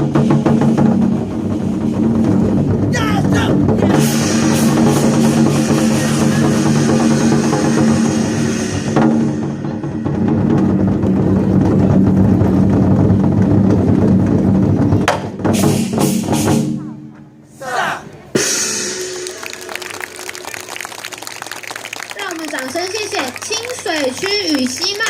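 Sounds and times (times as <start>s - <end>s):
war drums: 0.0s - 16.9s.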